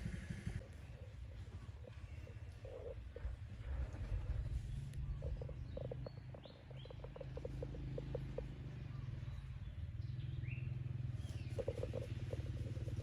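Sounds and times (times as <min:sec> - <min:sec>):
bird pulsed notes: 0:04.7 - 0:13.0.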